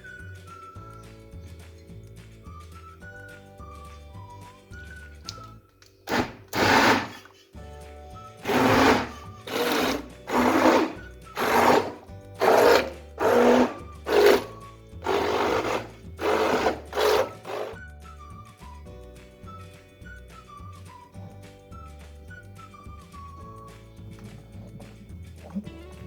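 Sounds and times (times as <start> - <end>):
blender pulsing: 6.1 - 7.2, 8.4 - 17.8.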